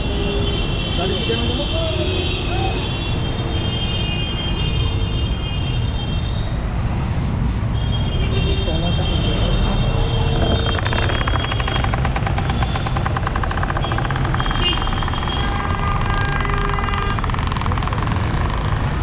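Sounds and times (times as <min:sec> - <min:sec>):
traffic rumble: 0:00.0 - 0:19.0
car horns: 0:07.8 - 0:18.5
rapid buzzing pulse: 0:10.3 - 0:19.0.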